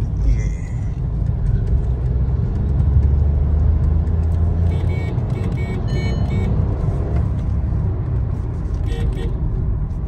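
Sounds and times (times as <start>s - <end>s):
road rumble: 0.0s - 10.0s
car engine accelerating: 1.0s - 5.4s.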